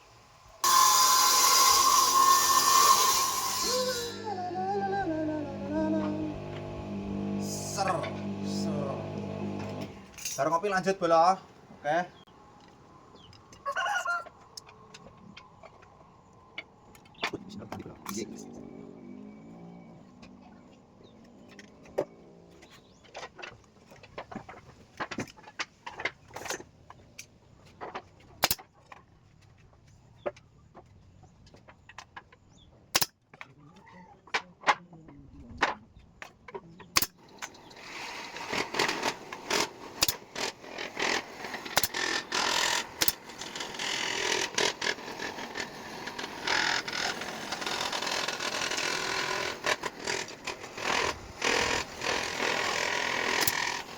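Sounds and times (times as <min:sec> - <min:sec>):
rasping: 0:00.7 - 0:10.0, 0:37.5 - 0:53.9.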